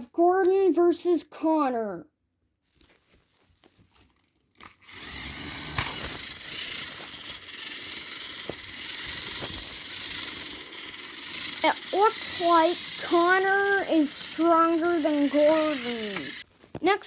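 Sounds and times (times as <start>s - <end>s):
toy train motors whirring: 4.6s - 17.0s.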